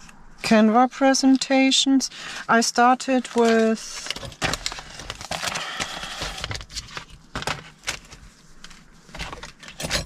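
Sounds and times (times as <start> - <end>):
paper rustling: 3.1 - 10.0.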